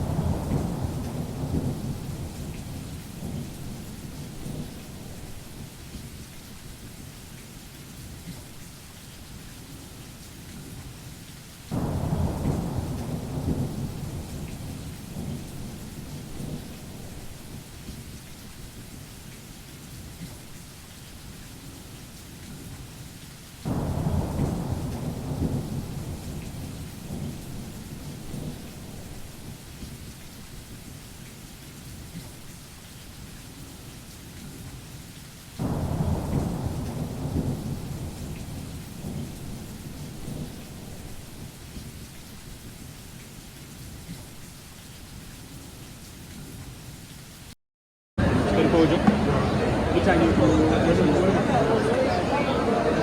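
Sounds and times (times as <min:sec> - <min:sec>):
thunder claps rumbling: 0:00.0 - 0:05.6, 0:11.7 - 0:17.7, 0:23.7 - 0:29.5, 0:35.6 - 0:41.3, 0:48.2 - 0:53.0
steady rain: 0:00.0 - 0:47.6, 0:48.2 - 0:53.0.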